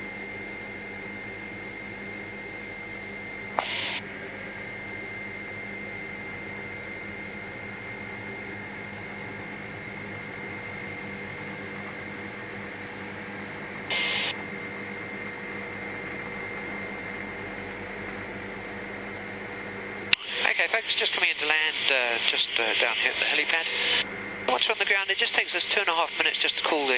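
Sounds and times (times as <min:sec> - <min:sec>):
helicopter cabin hum: 0:00.2 - 0:26.9
whining tones: 0:02.3 - 0:19.4.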